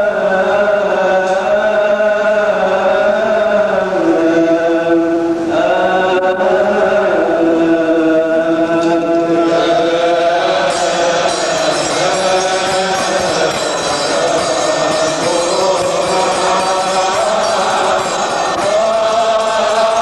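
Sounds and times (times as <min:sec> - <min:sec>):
man chanting a hymn: 0:00.0 - 0:20.0
metallic percussion jingling: 0:10.4 - 0:20.0.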